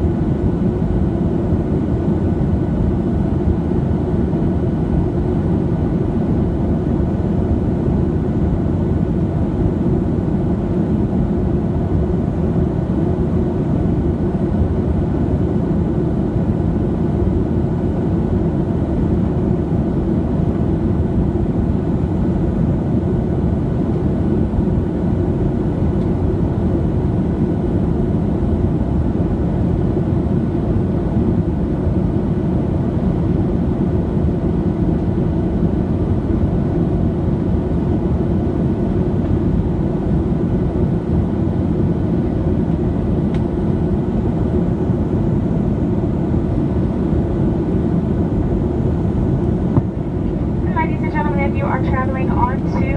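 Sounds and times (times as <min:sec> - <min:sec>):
jet engine rumble in cabin: 0:00.0 - 0:52.9.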